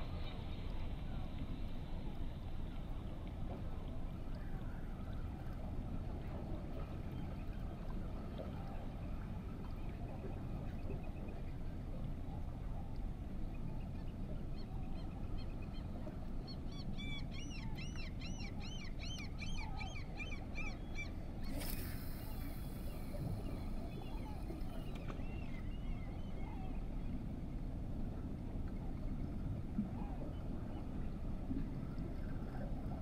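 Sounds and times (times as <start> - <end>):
steady low rumble: 20.3 - 33.0.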